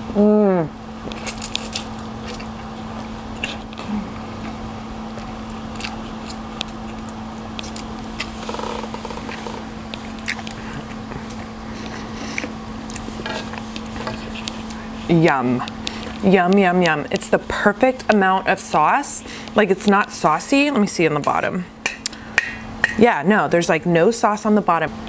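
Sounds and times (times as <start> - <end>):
low hum: 0.0 - 23.0
person chewing food: 1.0 - 17.3
wet mouth clicks: 9.9 - 13.1.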